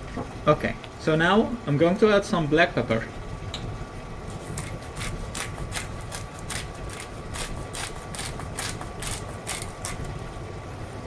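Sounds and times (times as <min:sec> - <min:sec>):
pepper grinder clicking: 0:04.6 - 0:10.1.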